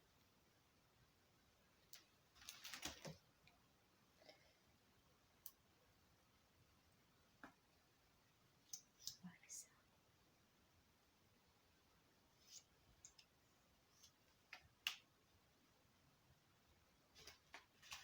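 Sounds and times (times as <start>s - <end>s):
light rustling of small objects: 1.8s - 3.6s, 17.0s - 18.0s
faint clicks of small objects: 8.6s - 9.6s, 12.4s - 15.1s.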